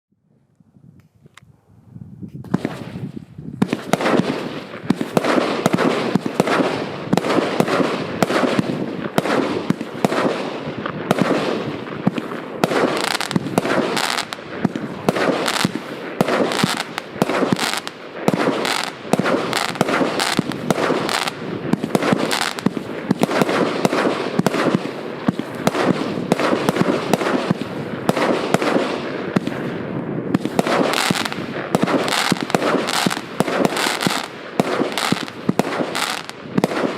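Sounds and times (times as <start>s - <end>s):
firework cake firing rapidly: 2.6s - 36.9s.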